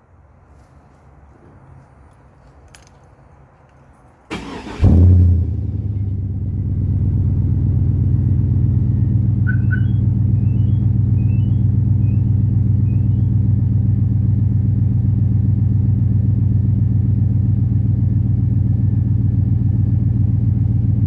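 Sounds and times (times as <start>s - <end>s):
starter cranking: 4.3s - 4.9s
car engine idling: 4.3s - 21.0s.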